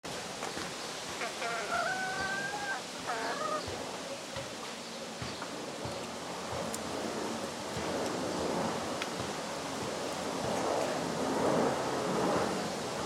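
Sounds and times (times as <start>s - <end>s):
steady background hiss: 0.1s - 13.0s
rooster crowing: 1.3s - 3.7s.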